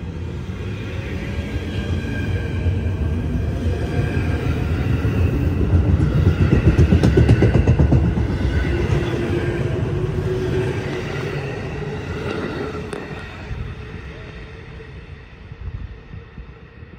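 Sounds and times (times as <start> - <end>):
train wheels clattering over rail joints: 5.4 - 9.4.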